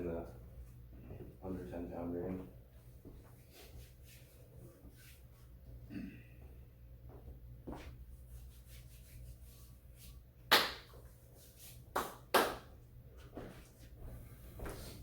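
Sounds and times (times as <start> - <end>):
sharp hand slaps: 10.5 - 11.0, 11.9 - 12.7.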